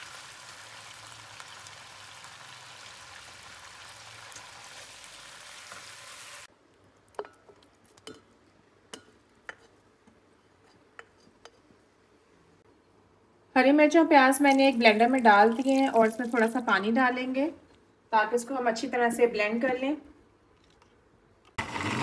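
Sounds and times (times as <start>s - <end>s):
chicken sizzling in hot oil: 0.0s - 6.5s.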